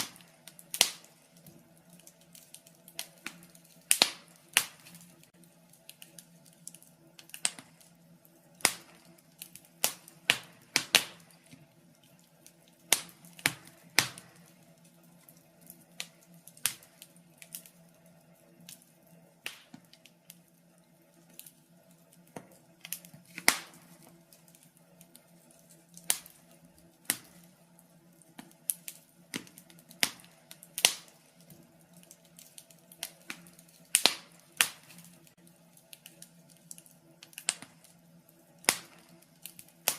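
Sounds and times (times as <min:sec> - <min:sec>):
faint steady hum: 0:00.0 - 0:39.9
wood fire crackling: 0:00.0 - 0:39.9.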